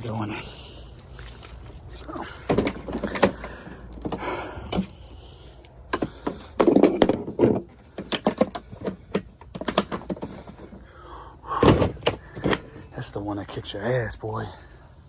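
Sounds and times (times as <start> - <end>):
knocks and clicks of handling: 2.4 - 5.0, 5.6 - 10.8.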